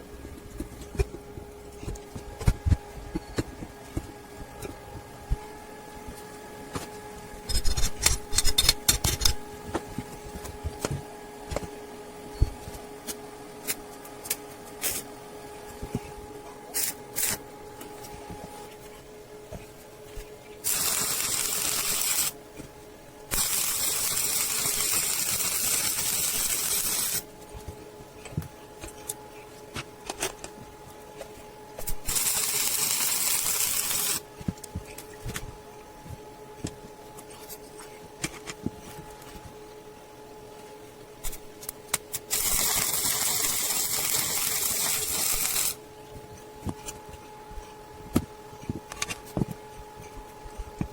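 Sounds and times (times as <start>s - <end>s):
steady hum: 0.0s - 50.9s
high hissing bursts: 20.6s - 22.4s, 32.0s - 34.2s, 42.3s - 45.8s.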